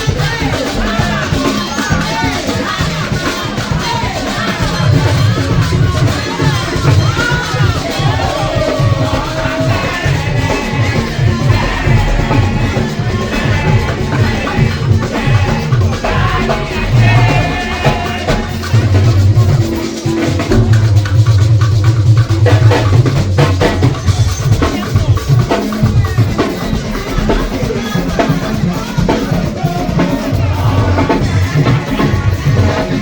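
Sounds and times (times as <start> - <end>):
drum kit music: 0.0 - 33.0
heavy bass line: 4.5 - 23.2.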